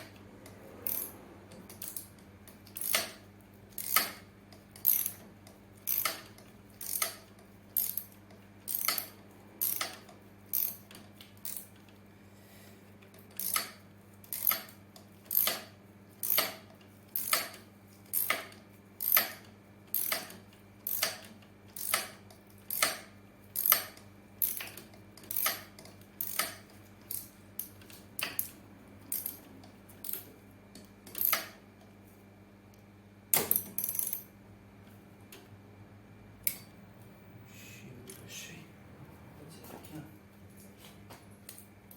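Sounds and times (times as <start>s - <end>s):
sharp mechanical clicks: 0.0s - 12.0s, 13.1s - 31.6s
steady low hum: 0.0s - 41.9s.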